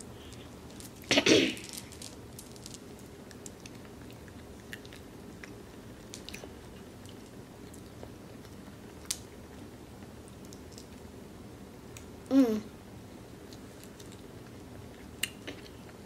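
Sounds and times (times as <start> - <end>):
child chewing: 1.7 - 11.0, 13.4 - 16.0.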